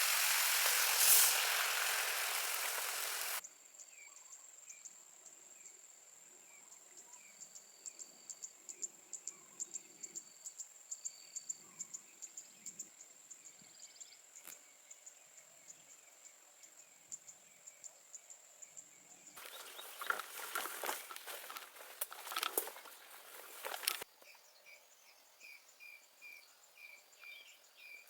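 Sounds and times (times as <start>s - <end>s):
insects trilling: 0.0s - 3.4s, 19.4s - 24.0s
loud hiss: 0.0s - 3.4s
bird chirping: 19.4s - 22.0s.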